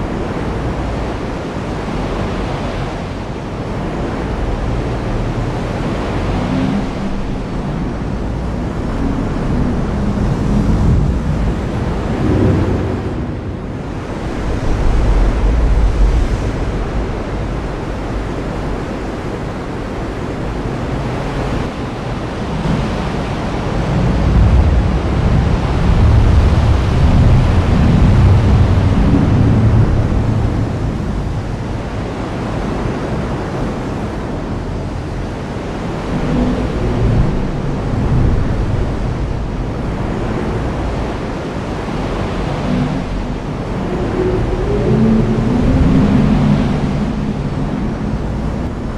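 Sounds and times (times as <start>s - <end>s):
low thunder rumbling: 7.1s - 18.7s.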